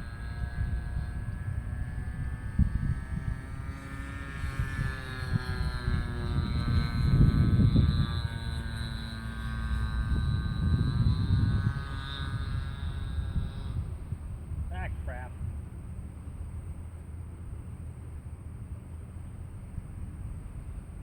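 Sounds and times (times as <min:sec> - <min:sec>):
gusty low rumbling: 0:00.0 - 0:16.6
model plane motor droning: 0:00.0 - 0:21.0.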